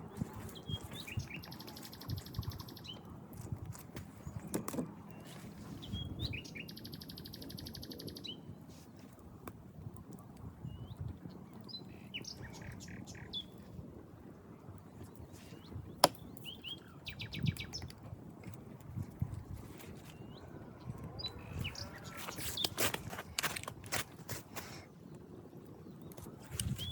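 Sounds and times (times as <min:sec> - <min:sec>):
birds chirping: 0:00.0 - 0:03.3, 0:04.1 - 0:08.5, 0:10.7 - 0:13.7, 0:15.0 - 0:17.9, 0:19.7 - 0:23.7.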